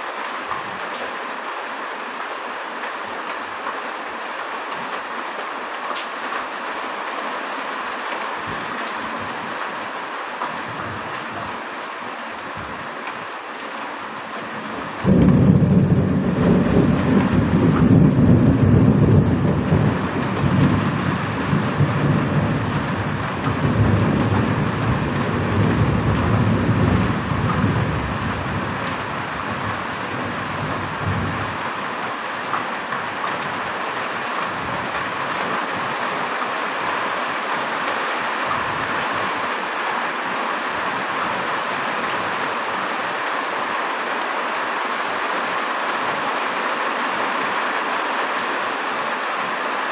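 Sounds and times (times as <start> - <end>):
heavy rain falling: 0.0 - 49.9
thunder rumbling: 14.8 - 31.7.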